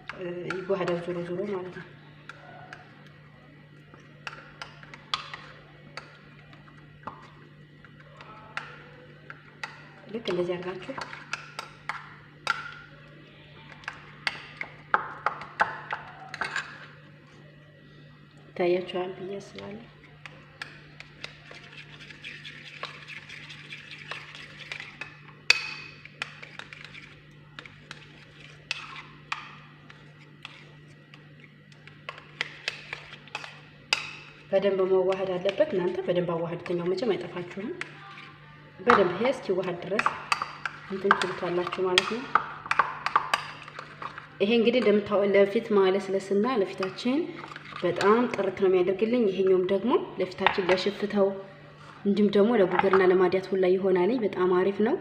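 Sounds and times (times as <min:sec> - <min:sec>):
faint steady hum: 0:00.0 - 0:55.0
spoon scraping against bowl: 0:15.4 - 0:17.0, 0:20.0 - 0:34.5, 0:36.6 - 0:45.0, 0:46.6 - 0:48.6.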